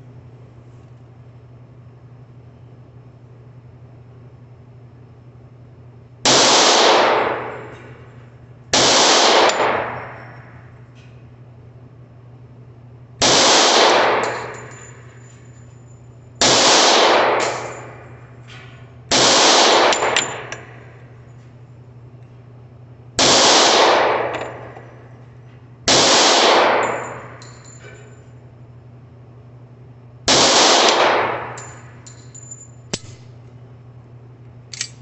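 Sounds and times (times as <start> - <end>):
pistol shots: 6.3 - 8.0, 8.7 - 10.6, 13.2 - 14.8, 16.4 - 18.2, 19.1 - 20.8, 23.2 - 25.0, 25.9 - 27.5, 30.3 - 31.9
faint metallic clinks: 14.3 - 16.3, 26.8 - 28.4, 31.6 - 33.1.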